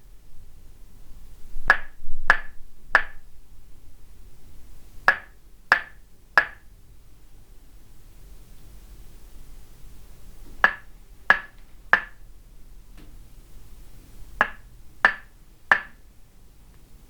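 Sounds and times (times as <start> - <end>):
wooden mallet knocking on wood: 1.7 - 3.2, 5.1 - 6.6, 10.6 - 12.2, 14.4 - 16.0.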